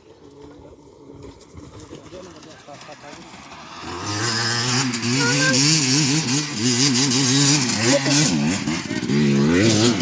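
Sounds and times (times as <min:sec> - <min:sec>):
dirt bike engine revving: 0:00.1 - 0:10.0.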